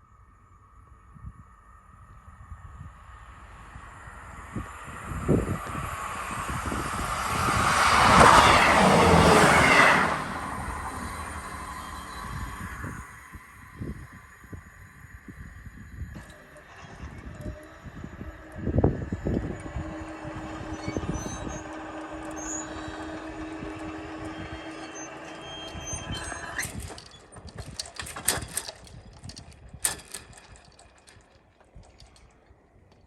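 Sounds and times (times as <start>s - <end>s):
vehicle engine passing: 5.0s - 13.1s, 16.4s - 27.0s.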